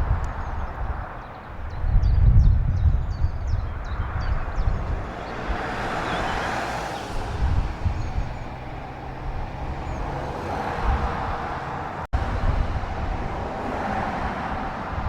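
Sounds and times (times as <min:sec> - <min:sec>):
wind rumble on microphone: 0:00.0 - 0:15.0
vehicle passing: 0:03.8 - 0:15.0.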